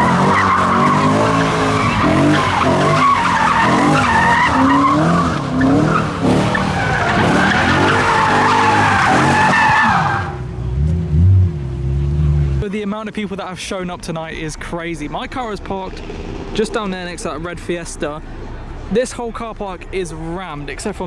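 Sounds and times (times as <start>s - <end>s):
tyres squealing: 0.0s - 10.4s
car engine revving: 0.0s - 12.6s.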